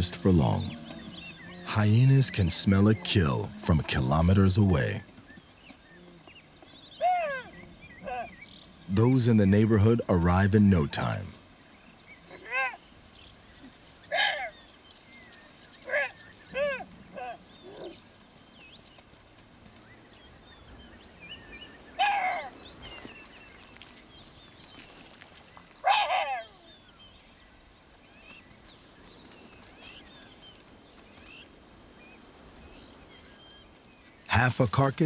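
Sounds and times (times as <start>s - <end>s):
outdoor ambience: 0.0s - 12.2s, 27.7s - 35.0s.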